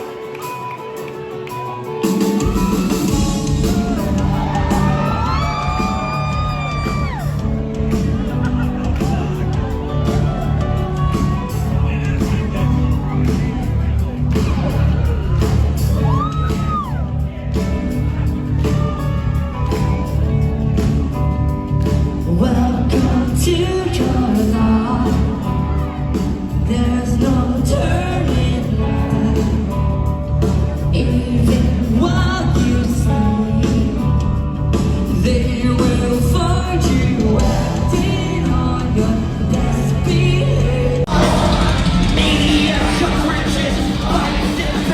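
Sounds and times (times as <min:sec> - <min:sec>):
crowd whooping: 0:00.0 - 0:20.8, 0:41.0 - 0:44.9
live rock band playing loudly: 0:00.0 - 0:44.9
person singing: 0:22.2 - 0:44.9.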